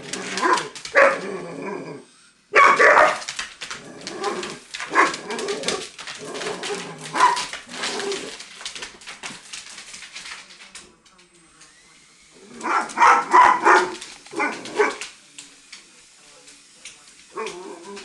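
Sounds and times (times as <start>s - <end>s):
dog barking loudly: 0.3s - 1.2s, 2.5s - 3.3s, 4.8s - 5.8s, 7.0s - 7.6s, 12.5s - 15.0s.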